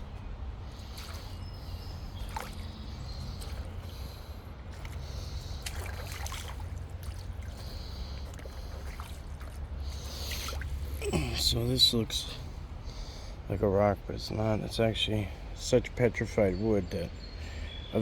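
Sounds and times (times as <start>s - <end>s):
water splashing around wading feet: 0.0s - 11.6s.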